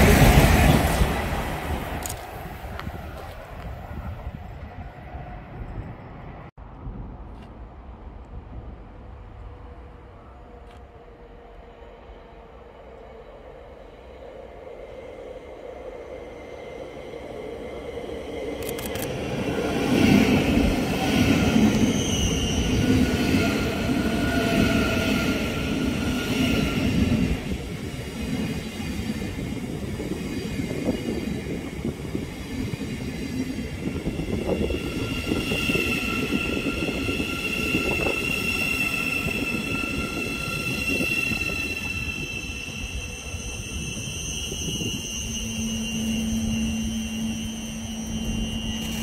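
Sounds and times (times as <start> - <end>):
train rumbling along track: 0.0 - 49.0
high-pitched whining tones: 32.4 - 49.0.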